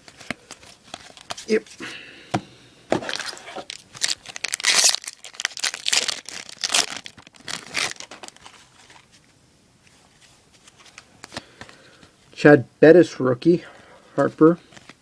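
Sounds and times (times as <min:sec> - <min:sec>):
card pack wrapper rustling: 0:00.0 - 0:01.6, 0:03.0 - 0:09.2.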